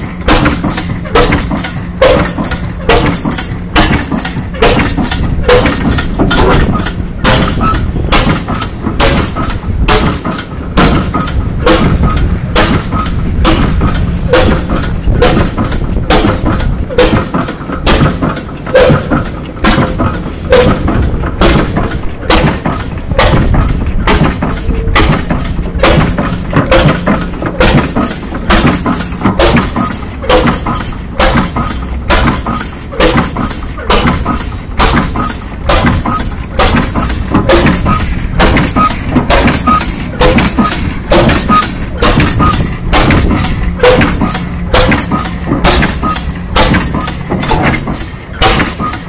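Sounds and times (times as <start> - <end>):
gas engine exhaust banging: 0.0 - 49.0.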